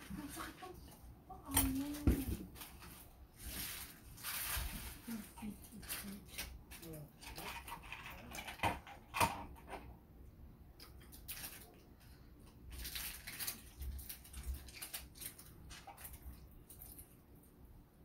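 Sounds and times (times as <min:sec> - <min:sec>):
close-up chewing and mouth noises: 0:10.7 - 0:17.6.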